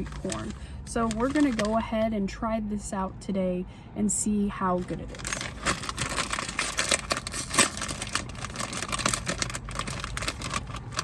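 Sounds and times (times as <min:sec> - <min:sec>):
plastic snack bag crinkling: 0:00.0 - 0:01.8, 0:04.8 - 0:11.0.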